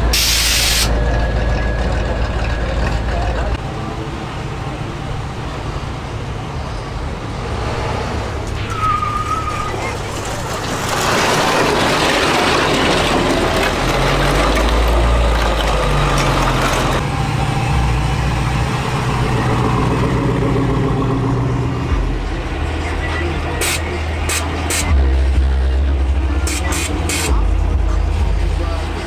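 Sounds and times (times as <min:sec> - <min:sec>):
motor vehicle engine and road noise: 0:00.0 - 0:29.0
deep steady drone: 0:17.0 - 0:29.0.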